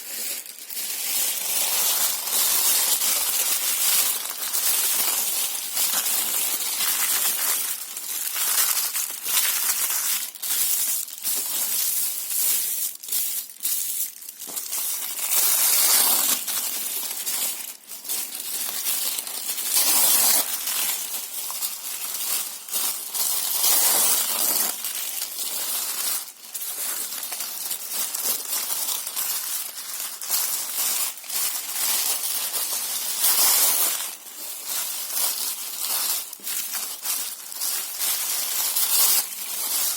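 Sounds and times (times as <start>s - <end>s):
paper and cardboard tearing: 23.7s - 25.2s.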